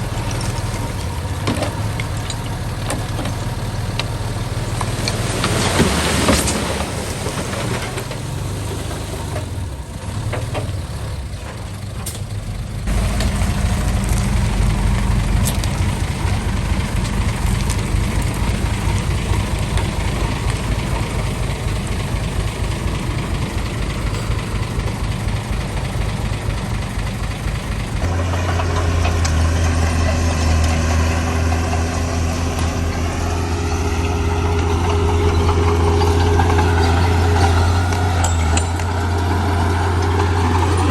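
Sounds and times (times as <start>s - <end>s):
heavy diesel engines running: 0.0s - 40.9s.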